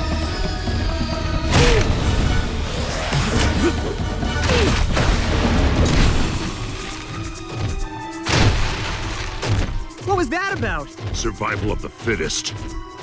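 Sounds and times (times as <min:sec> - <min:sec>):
cartoon background music: 0:00.0 - 0:13.0
crash and boom impacts: 0:04.4 - 0:10.0.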